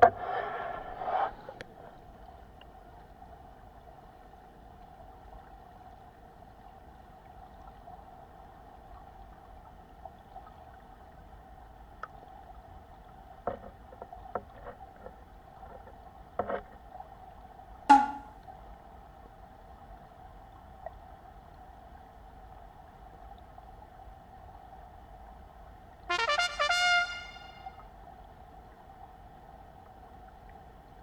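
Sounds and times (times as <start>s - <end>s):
sharp clack: 17.9s - 18.3s.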